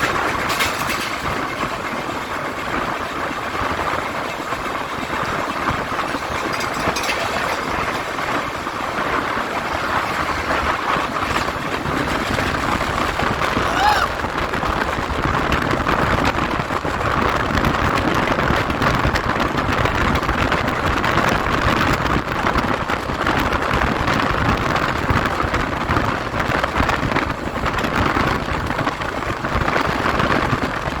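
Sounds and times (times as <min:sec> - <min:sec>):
wind rushing: 0:00.0 - 0:17.8
train wheels rumbling on rails: 0:00.0 - 0:31.0.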